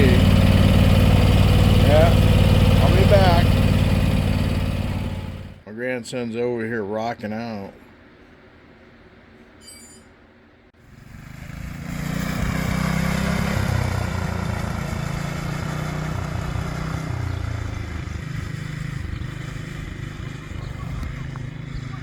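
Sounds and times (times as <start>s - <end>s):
small engine running: 0.0s - 5.6s, 10.8s - 22.0s.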